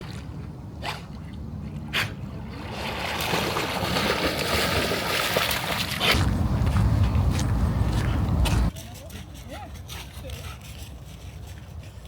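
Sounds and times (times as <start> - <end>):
dog splashing through water: 2.1 - 6.8.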